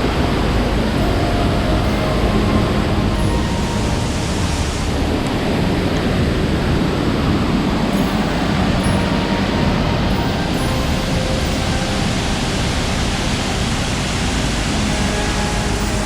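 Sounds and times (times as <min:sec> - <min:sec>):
falling water roaring: 0:00.0 - 0:16.0.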